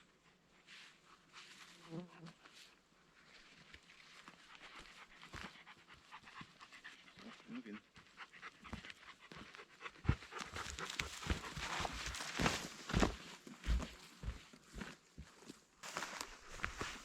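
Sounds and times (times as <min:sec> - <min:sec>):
faint dog panting: 0:04.2 - 0:12.4.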